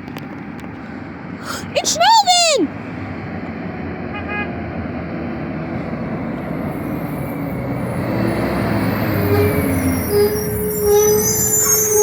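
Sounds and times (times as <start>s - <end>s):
garbage truck diesel engine: 2.7s - 12.0s.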